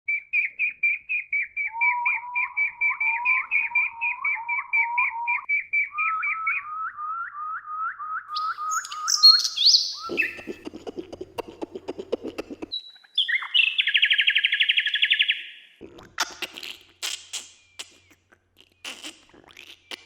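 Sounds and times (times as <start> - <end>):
bird chirping: 0.1 - 20.0
high shrill bird calls: 0.2 - 6.9, 8.2 - 10.6, 12.7 - 15.7.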